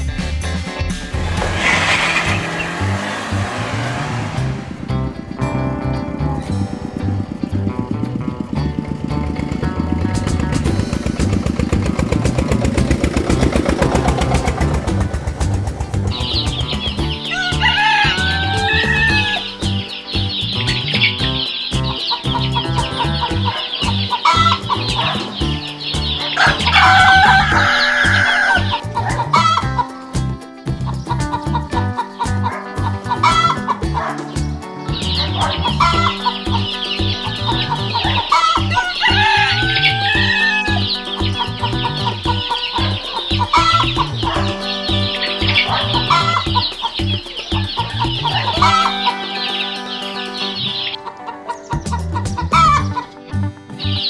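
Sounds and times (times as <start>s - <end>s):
music with bass beat: 0.0s - 54.0s
chickens clucking: 6.4s - 54.0s
chicks peeping: 13.2s - 53.2s
rooster crowing: 17.2s - 19.6s, 26.3s - 29.8s, 38.0s - 50.3s.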